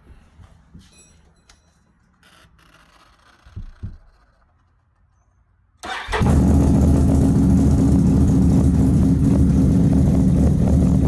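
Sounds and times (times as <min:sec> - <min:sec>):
atv engine running: 0:06.1 - 0:11.0.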